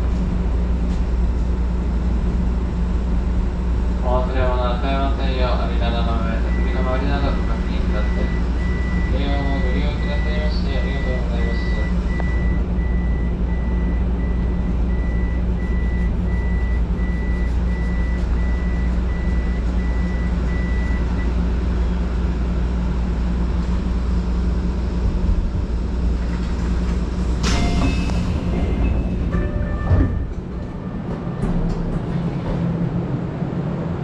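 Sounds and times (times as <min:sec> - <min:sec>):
train running rumble: 0:00.0 - 0:34.0
high beep: 0:06.5 - 0:21.0.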